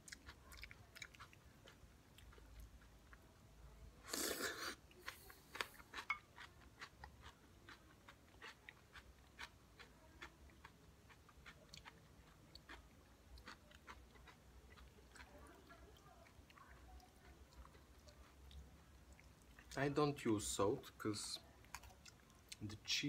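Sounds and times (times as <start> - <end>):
person biting crunchy salad: 4.0 - 7.4.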